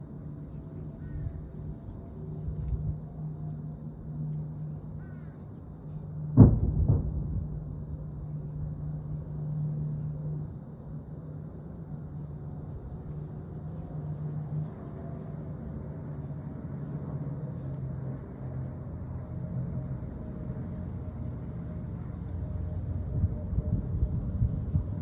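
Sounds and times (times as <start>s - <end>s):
steady low drone: 0.0s - 25.0s
sonic boom double bang: 6.4s - 9.0s.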